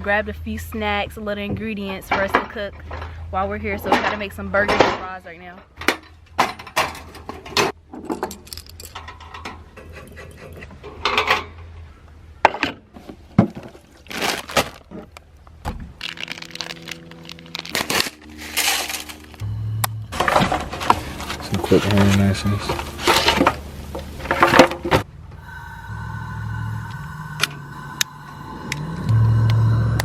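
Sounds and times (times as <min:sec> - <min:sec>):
low steady hum: 0:13.6 - 0:30.0.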